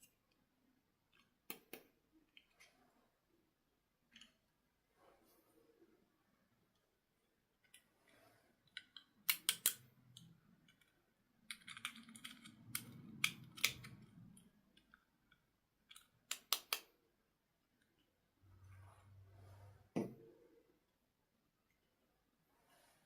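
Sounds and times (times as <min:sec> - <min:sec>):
plastic objects clicking: 0:08.7 - 0:16.9.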